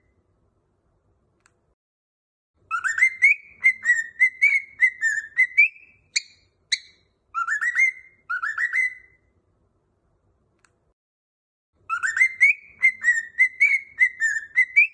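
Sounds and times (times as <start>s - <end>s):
cockatiel sharp chirps: 2.7s - 9.2s, 11.9s - 14.9s
cockatiel whistling: 2.7s - 9.2s, 11.9s - 14.9s.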